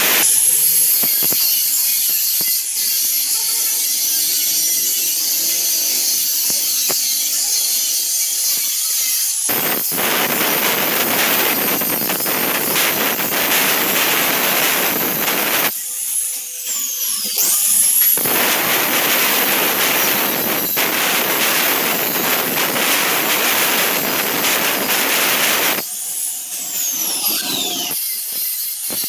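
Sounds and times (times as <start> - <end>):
electric arc welding crackling: 0.0 - 29.0.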